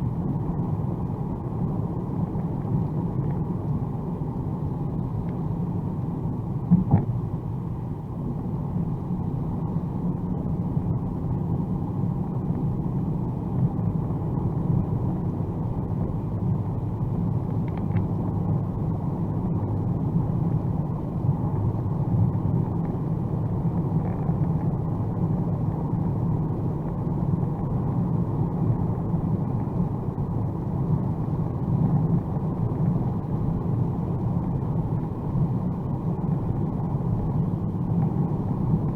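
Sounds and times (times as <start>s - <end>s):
car interior road rumble: 0.0s - 38.9s
short thump: 6.7s - 7.2s.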